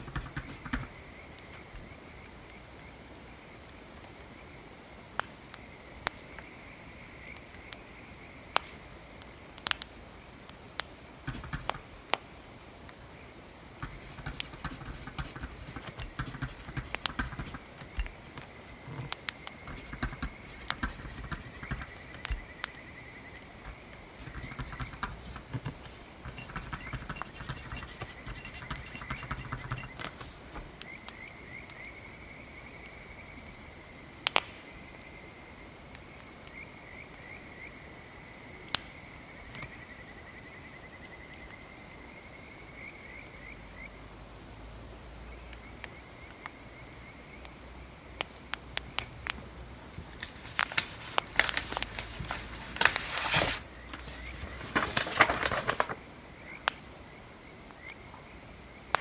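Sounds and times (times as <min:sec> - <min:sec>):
scratching: 0:00.0 - 0:01.9, 0:11.3 - 0:12.0, 0:13.8 - 0:30.8, 0:49.9 - 0:56.0
bonfire crackling and popping: 0:34.2 - 0:34.6.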